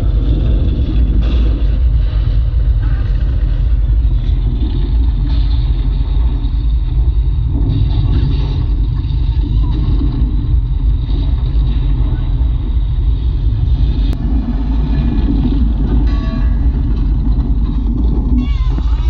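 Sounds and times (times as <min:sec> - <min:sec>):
deep bass rumble: 0:00.0 - 0:19.0.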